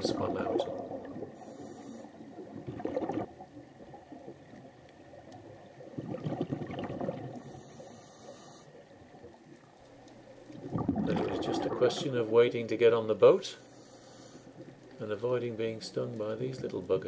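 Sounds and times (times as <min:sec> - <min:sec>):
exhaled air bubbling underwater: 0:00.0 - 0:12.6
regulator inhalation hiss: 0:01.4 - 0:02.3, 0:07.4 - 0:08.8, 0:13.4 - 0:14.6.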